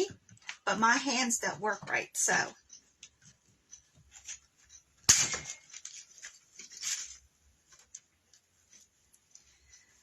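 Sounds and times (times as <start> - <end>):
wire clicking and rustling: 2.6 - 10.0.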